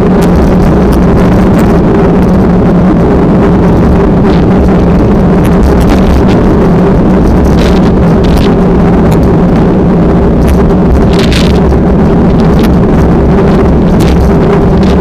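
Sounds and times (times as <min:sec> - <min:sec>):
steady engine drone: 0:00.0 - 0:15.0
wind rumble on microphone: 0:00.0 - 0:15.0.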